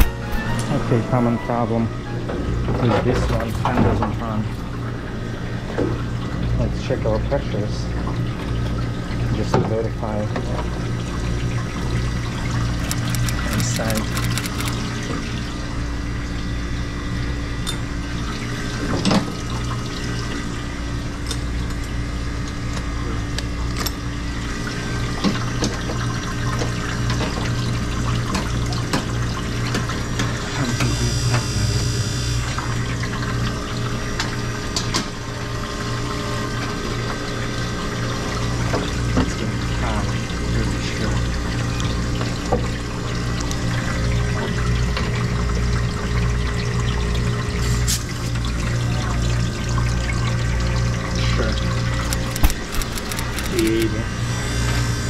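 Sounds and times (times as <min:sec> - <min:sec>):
water pouring and trickling: 0:00.0 - 0:16.5, 0:18.0 - 0:22.7, 0:32.3 - 0:53.8
low machine hum: 0:00.0 - 0:55.0.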